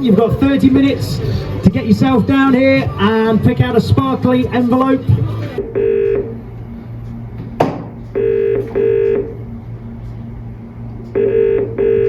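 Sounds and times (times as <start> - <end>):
low line hum: 0.0 - 12.0
telephone ringing tone: 5.6 - 6.4, 8.2 - 9.4, 11.1 - 12.0.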